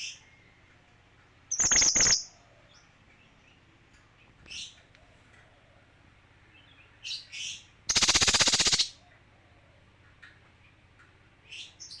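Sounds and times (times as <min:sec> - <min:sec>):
bird singing rapid rattling trill: 0:01.5 - 0:02.3, 0:07.9 - 0:09.0.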